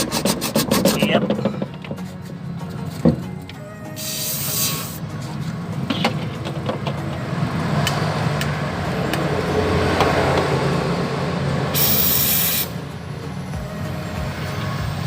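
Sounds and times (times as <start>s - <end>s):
high hiss burst: 4.0s - 5.0s, 11.8s - 12.8s.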